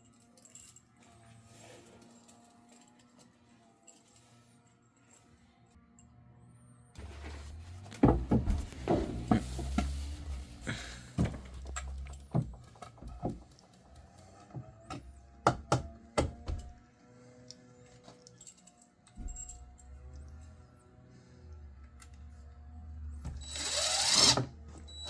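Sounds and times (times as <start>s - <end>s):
tools and pipe parts clinking: 0.0s - 5.6s, 8.0s - 14.9s, 17.8s - 20.5s.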